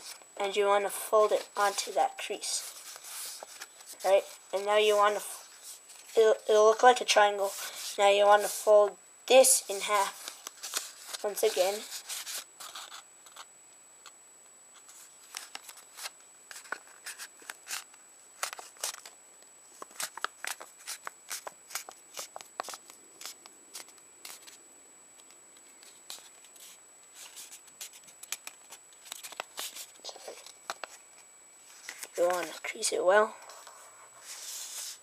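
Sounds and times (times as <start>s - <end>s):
faint high-pitched whine: 0.0s - 35.0s
paper being folded: 2.6s - 6.5s, 9.8s - 13.4s, 14.8s - 19.1s, 19.8s - 24.6s, 25.8s - 31.0s.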